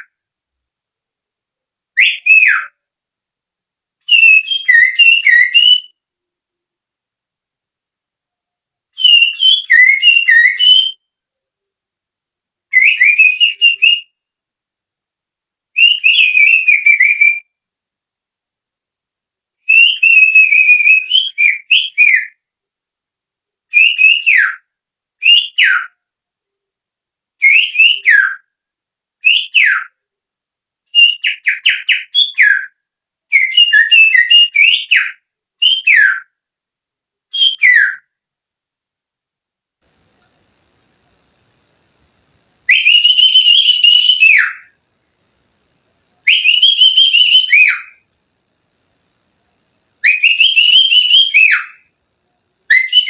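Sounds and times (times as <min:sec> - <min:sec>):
finger whistling birdsong imitation: 0:01.9 - 0:02.8, 0:04.0 - 0:06.0, 0:09.0 - 0:11.1, 0:12.7 - 0:14.2, 0:15.8 - 0:17.6, 0:19.6 - 0:22.4, 0:23.7 - 0:26.0, 0:27.4 - 0:28.5, 0:29.2 - 0:30.0, 0:30.9 - 0:36.4, 0:37.3 - 0:38.2, 0:42.7 - 0:44.8, 0:46.2 - 0:48.0, 0:50.0 - 0:51.9, 0:52.7 - 0:53.0.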